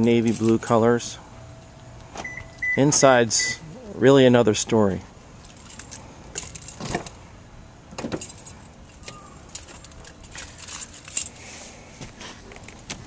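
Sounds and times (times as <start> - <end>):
keys jangling: 0.0 - 0.8, 5.4 - 7.2, 8.1 - 11.4
handling clicks and rustles: 5.3 - 7.2, 7.9 - 13.0.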